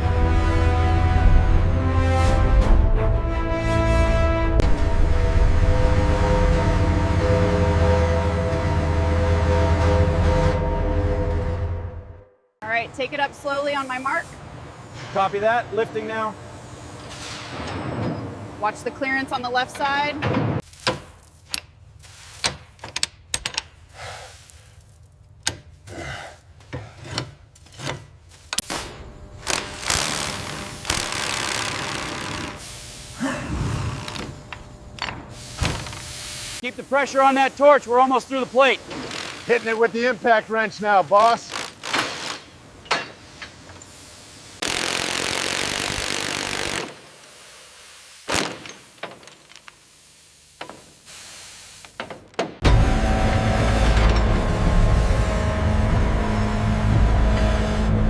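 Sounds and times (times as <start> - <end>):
power tool running: 29.4 - 39.9, 41.3 - 42.5, 44.6 - 47.1, 52.6 - 58.0
steady low hum: 52.6 - 58.0.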